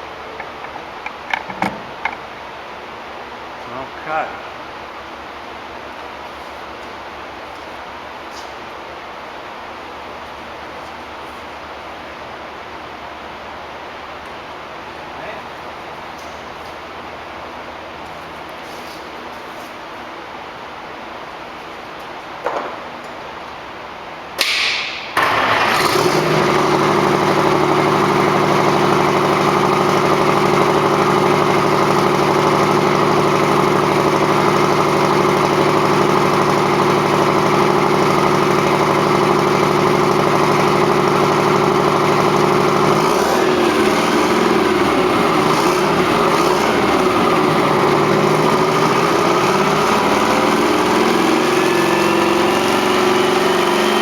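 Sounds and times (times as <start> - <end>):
diesel engine starting and idling: 24.4 - 54.0
engine whine: 25.2 - 54.0.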